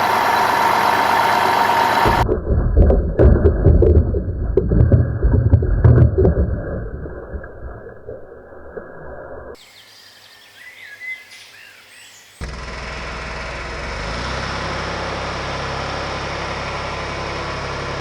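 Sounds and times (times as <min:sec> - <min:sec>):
low engine rumble: 0:00.0 - 0:09.6, 0:12.4 - 0:18.0
bird chirp: 0:09.6 - 0:12.5.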